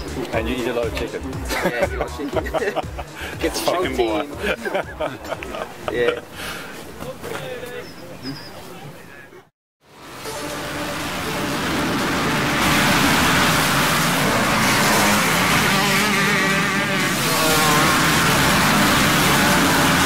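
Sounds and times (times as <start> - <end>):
motocross bike engines revving: 10.4 - 20.0.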